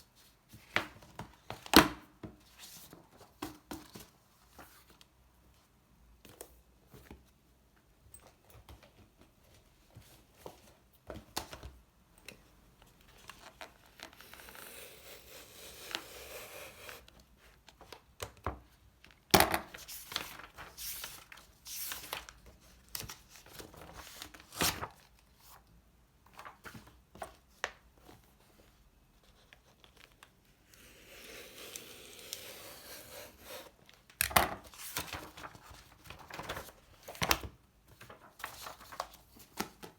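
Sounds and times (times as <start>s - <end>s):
paper or packaging rustling: 19.6s - 25.1s, 34.6s - 37.3s, 38.0s - 39.9s.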